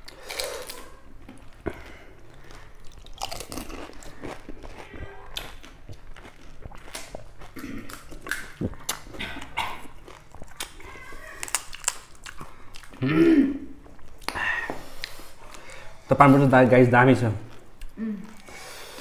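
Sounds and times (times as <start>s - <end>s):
crunching and chewing: 0.0s - 15.8s
crisp shells cracking: 10.5s - 12.5s.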